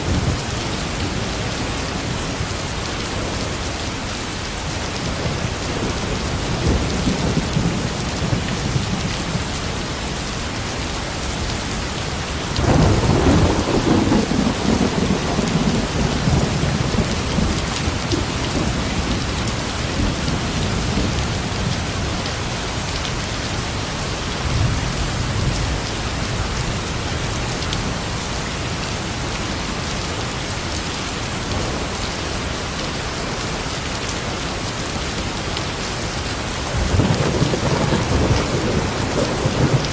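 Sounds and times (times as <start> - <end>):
heavy rain: 0.0 - 39.9
thunder rumbling: 12.6 - 22.0, 36.6 - 39.9.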